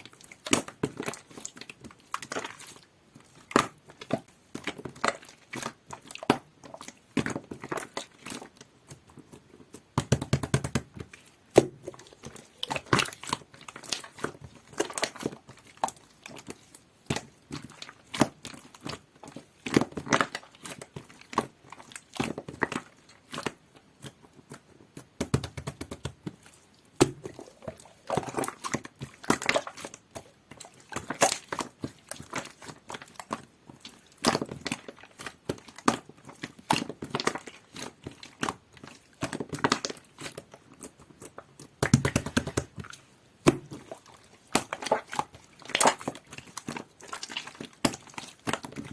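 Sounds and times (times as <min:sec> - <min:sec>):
slime squished by hand: 0:00.1 - 0:48.9.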